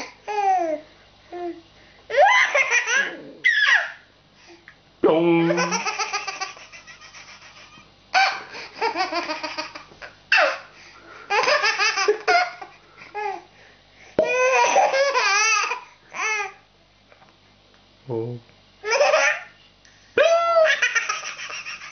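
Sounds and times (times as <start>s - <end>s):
baby laughing: 2.1s - 4.0s, 5.5s - 10.7s, 11.3s - 13.4s, 14.2s - 16.6s, 18.8s - 19.5s, 20.2s - 21.9s.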